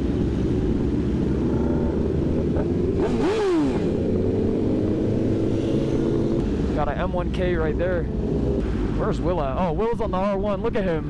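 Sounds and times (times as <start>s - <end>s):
motorcycle engine revving: 0.0s - 6.8s
motorcycle engines running: 0.0s - 11.0s.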